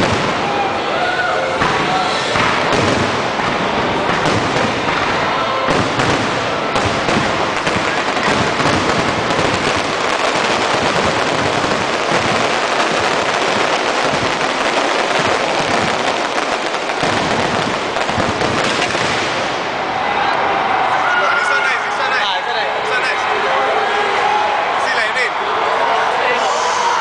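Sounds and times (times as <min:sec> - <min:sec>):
fireworks bangs and crackle: 0:00.0 - 0:20.0.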